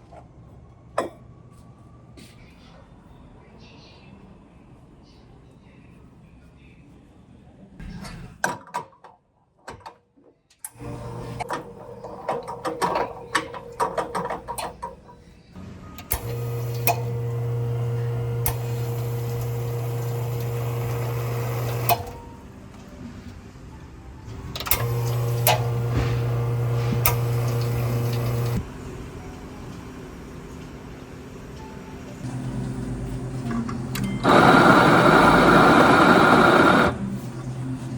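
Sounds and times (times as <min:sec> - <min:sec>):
electric motor humming: 0:10.7 - 0:13.8, 0:16.0 - 0:22.5, 0:24.3 - 0:28.9, 0:32.2 - 0:37.5.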